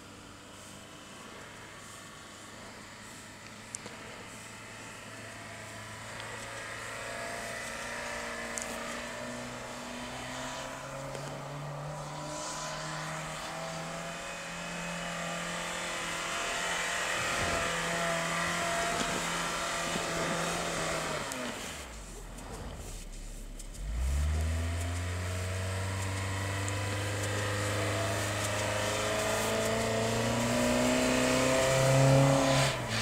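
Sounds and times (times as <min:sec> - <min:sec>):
car engine revving under load: 0:00.0 - 0:33.0.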